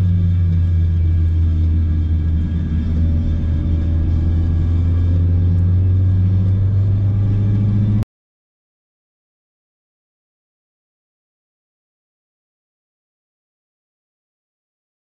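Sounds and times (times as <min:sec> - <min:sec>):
car engine droning inside cabin: 0:00.0 - 0:08.0.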